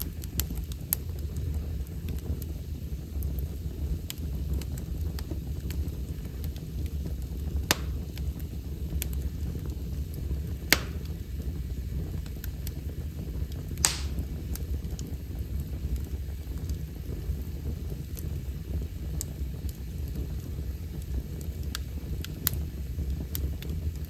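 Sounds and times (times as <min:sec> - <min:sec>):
loud fire pops: 0:00.0 - 0:24.0
wood fire crackling: 0:00.0 - 0:24.0.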